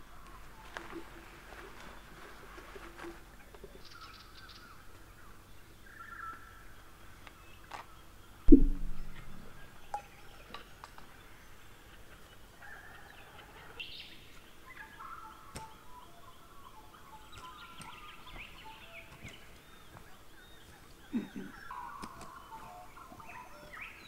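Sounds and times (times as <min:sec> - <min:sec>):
birds calling faintly: 0:00.0 - 0:24.0
loud low thump: 0:08.5 - 0:09.7.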